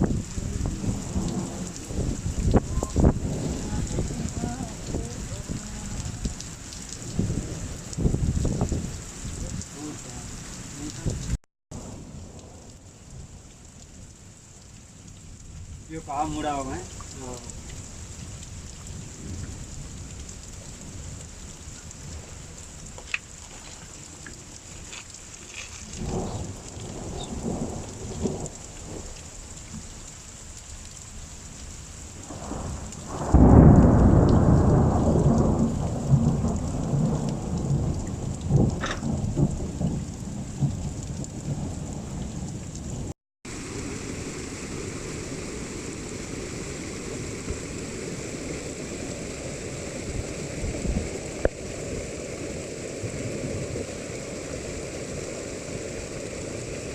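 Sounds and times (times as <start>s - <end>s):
thunder rolling: 0.0s - 6.4s, 7.0s - 9.6s, 32.2s - 40.0s
steady rain: 0.0s - 56.9s
loud thunder clap: 32.3s - 37.9s.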